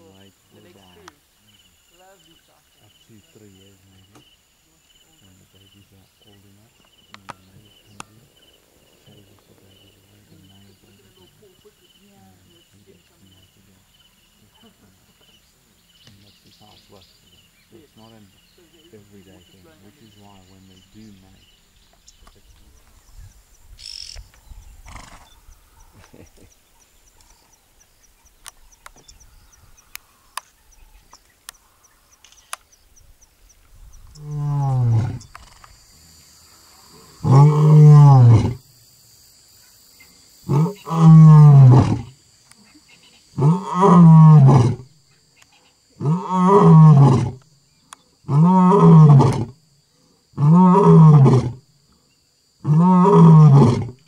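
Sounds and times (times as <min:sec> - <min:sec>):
faint insect ticking: 0:00.0 - 0:54.0
lion roaring: 0:34.2 - 0:35.3, 0:36.9 - 0:38.6, 0:40.5 - 0:42.1, 0:43.4 - 0:44.8, 0:46.0 - 0:47.4, 0:48.3 - 0:49.5, 0:50.4 - 0:51.6, 0:52.6 - 0:54.0.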